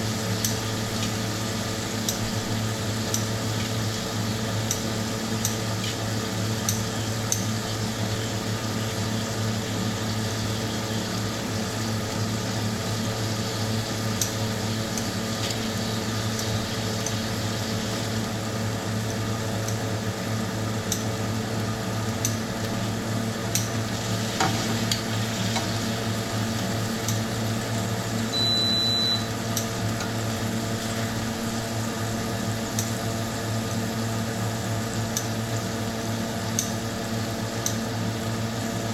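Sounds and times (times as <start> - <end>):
meat sizzling in a hot pan: 0.0 - 38.9
steady hum: 21.7 - 33.5
short high beep: 28.3 - 29.3.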